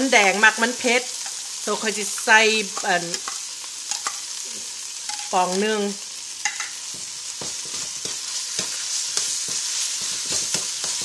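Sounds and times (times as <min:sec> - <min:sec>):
paste sizzling in hot oil: 0:00.0 - 0:11.0
spoon scraping and knocking pan: 0:02.7 - 0:04.3, 0:05.0 - 0:05.4, 0:06.4 - 0:11.0.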